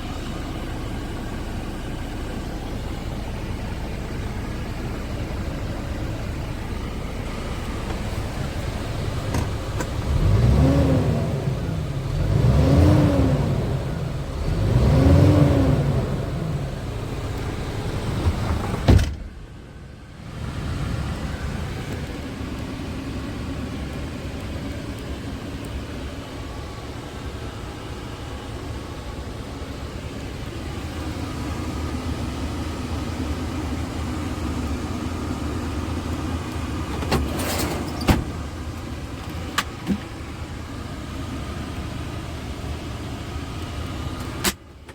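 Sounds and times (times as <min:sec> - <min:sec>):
engine humming: 0:00.0 - 0:44.9
truck engine revving: 0:06.6 - 0:18.8.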